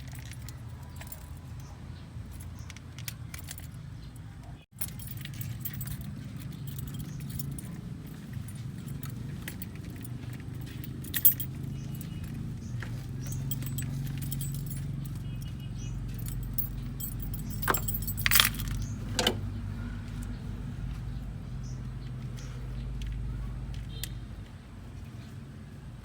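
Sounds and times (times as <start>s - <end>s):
metallic clinks and clatter: 0.0s - 20.4s
engine running: 4.8s - 26.0s.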